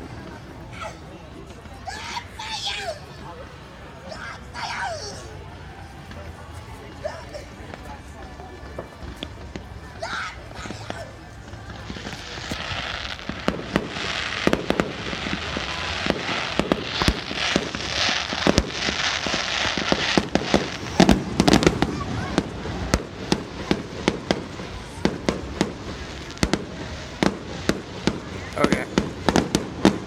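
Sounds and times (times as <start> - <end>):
fireworks hissing: 6.9 - 30.0
fireworks bangs: 8.6 - 30.0.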